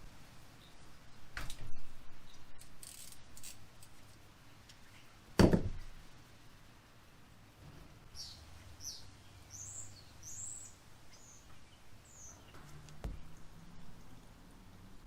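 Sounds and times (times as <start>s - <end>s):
small birds chirping: 0.5s - 2.8s, 8.0s - 14.4s.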